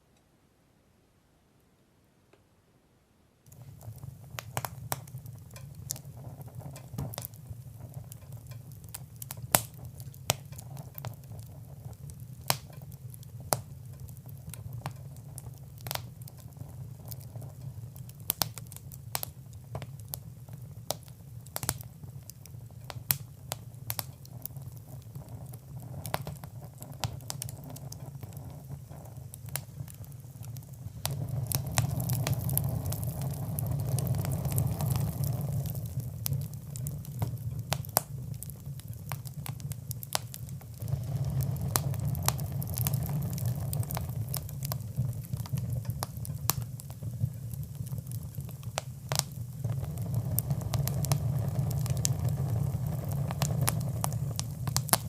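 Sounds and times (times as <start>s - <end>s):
fire crackling and popping: 3.4s - 55.0s.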